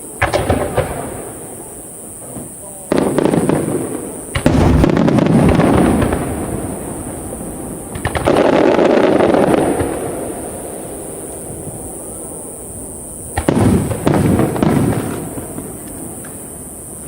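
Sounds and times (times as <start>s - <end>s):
firework booms: 0.0s - 17.0s
firework crackling: 0.0s - 17.0s.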